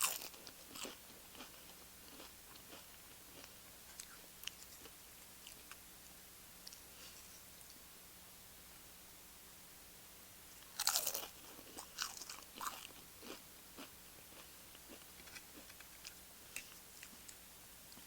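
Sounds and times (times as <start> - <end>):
crunchy chewing: 0.0 - 7.8, 10.6 - 17.4
crunching bite into chip: 10.6 - 13.9.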